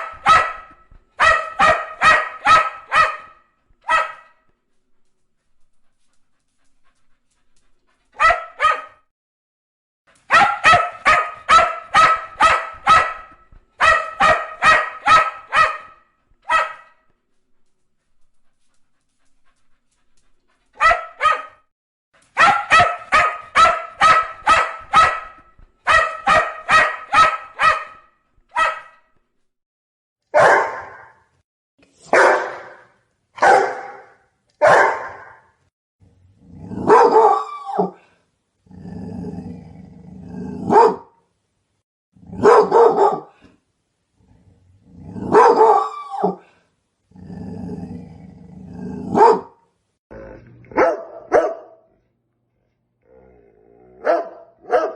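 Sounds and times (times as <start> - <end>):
small dog barking fast: 0.0 - 4.3, 8.2 - 9.0, 10.3 - 16.9, 20.8 - 21.6, 22.4 - 28.0, 28.6 - 28.9, 30.4 - 31.2, 32.1 - 32.8, 33.4 - 35.4, 36.8 - 38.0, 40.7 - 41.1, 42.4 - 43.4, 45.3 - 46.4, 49.1 - 49.5, 50.8 - 51.8, 54.0 - 54.9
large dog barking: 0.0 - 4.4, 8.2 - 9.0, 10.3 - 17.0, 20.8 - 21.6, 22.4 - 29.0, 30.3 - 31.3, 32.1 - 35.6, 36.6 - 38.0, 40.3 - 41.2, 42.2 - 43.4, 45.1 - 46.4, 48.8 - 49.6, 50.7 - 52.0, 53.9 - 54.9
dog growling: 36.0 - 37.0, 38.6 - 40.7, 44.2 - 45.4, 47.1 - 49.2, 50.1 - 50.8, 53.0 - 54.1.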